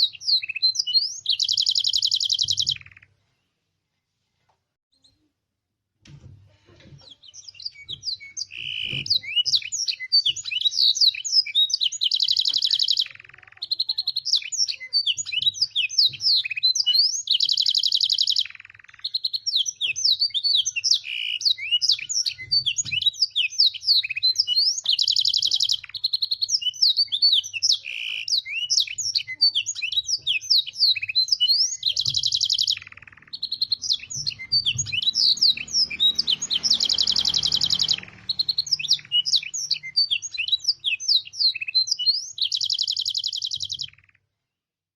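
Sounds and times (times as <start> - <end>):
canary singing with trills: 0.0 - 3.2, 7.0 - 44.3.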